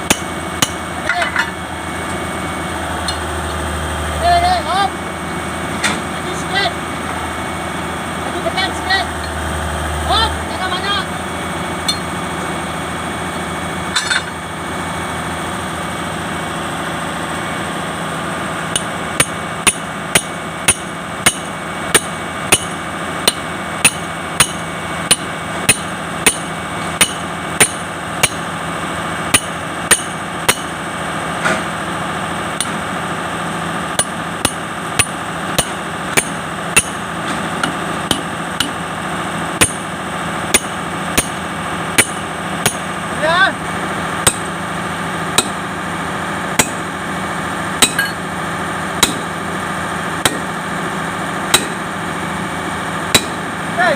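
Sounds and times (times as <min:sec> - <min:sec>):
steady machine hum: 0:00.0 - 0:53.9
hammer striking steel chain: 0:14.0 - 0:14.4, 0:18.7 - 0:28.4, 0:29.3 - 0:30.7, 0:34.0 - 0:37.0, 0:39.6 - 0:39.8, 0:40.5 - 0:41.4, 0:42.0 - 0:42.8, 0:47.8 - 0:48.2, 0:51.5 - 0:51.8, 0:53.1 - 0:53.4.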